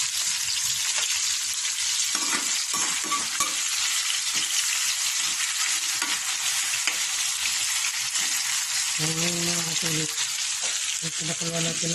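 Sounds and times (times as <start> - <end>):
food sizzling in a frying pan: 0.0 - 11.9
spatula scraping a pan: 2.0 - 7.2.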